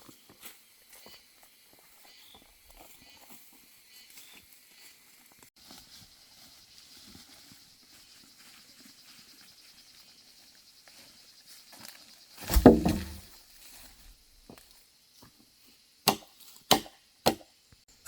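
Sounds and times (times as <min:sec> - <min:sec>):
shuffling and light footsteps: 0:05.6 - 0:09.9
loud heavy thud: 0:12.5 - 0:13.2.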